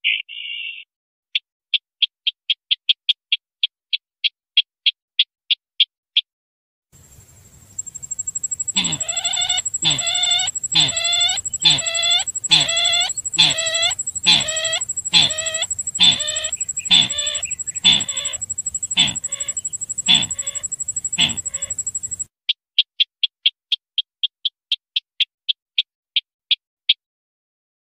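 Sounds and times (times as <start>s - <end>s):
harsh bird call: 7.8s - 22.2s
high pulsed trill: 7.8s - 22.3s.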